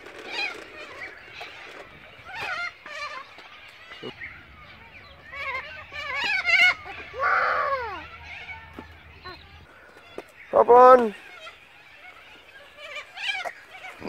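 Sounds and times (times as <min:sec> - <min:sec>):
waterfowl bleating calls: 0:05.2 - 0:09.8, 0:10.5 - 0:14.0.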